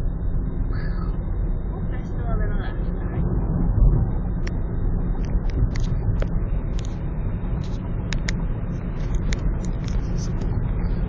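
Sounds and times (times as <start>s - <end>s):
car road and engine rumble: 0.0s - 11.0s
light irregular clicks: 7.6s - 8.4s.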